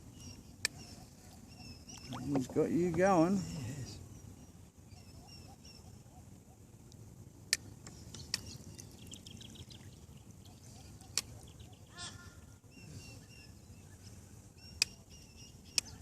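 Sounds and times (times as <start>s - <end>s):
faint bird chirps: 0.1s - 2.5s, 3.2s - 6.6s.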